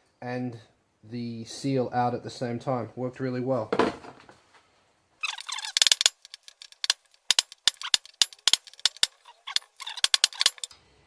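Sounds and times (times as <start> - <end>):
metal tools clinking: 5.2 - 10.7.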